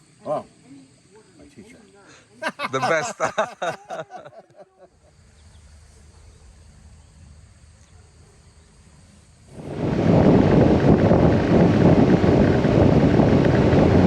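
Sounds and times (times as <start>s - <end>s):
faint insect drone: 0.0s - 14.0s
man's voice: 2.5s - 3.6s.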